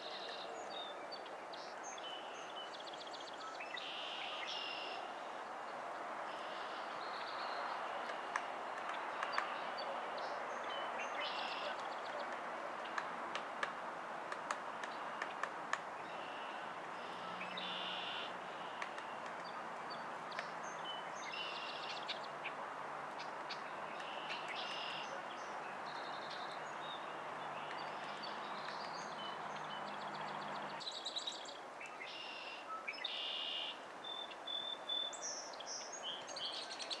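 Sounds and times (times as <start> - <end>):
wild birds calling: 14.7 - 22.6, 23.2 - 33.8.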